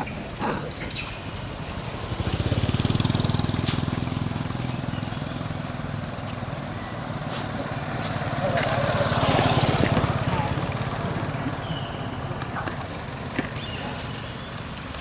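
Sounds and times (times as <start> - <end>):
small engine running: 1.8 - 12.3.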